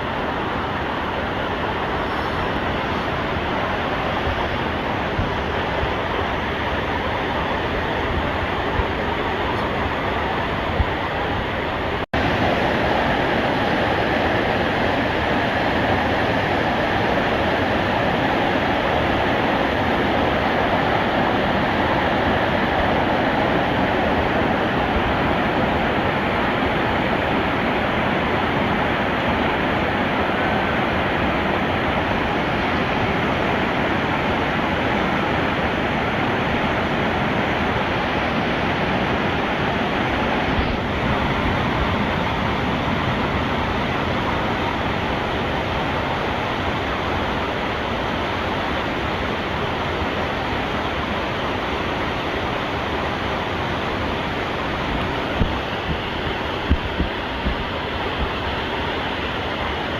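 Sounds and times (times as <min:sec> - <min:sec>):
whitewater rushing: 0:00.0 - 0:59.9.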